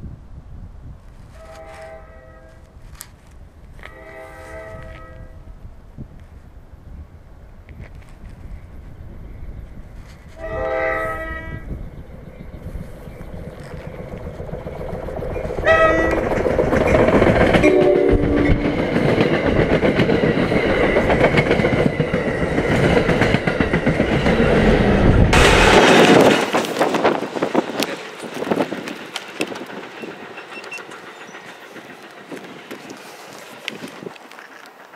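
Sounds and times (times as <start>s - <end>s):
train rumble: 1.0s - 34.9s
train horn blasts: 1.4s - 2.7s, 3.8s - 5.5s, 10.4s - 11.7s, 15.6s - 16.2s, 17.6s - 18.7s
wheel clatter on rails: 12.2s - 24.7s, 25.3s - 34.9s.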